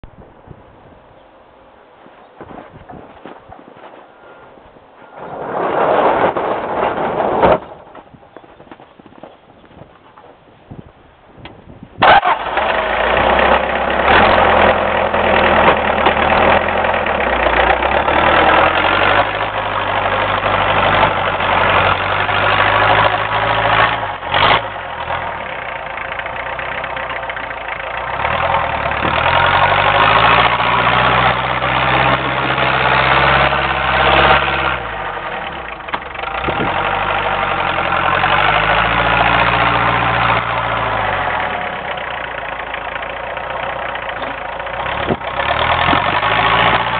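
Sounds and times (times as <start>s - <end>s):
tractor diesel engine running: 11.4s - 46.9s.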